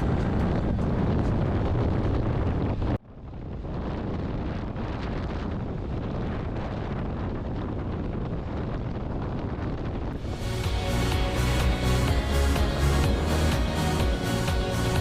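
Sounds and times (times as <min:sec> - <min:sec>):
wind rushing over microphone: 0:00.0 - 0:15.0
music: 0:10.2 - 0:15.0.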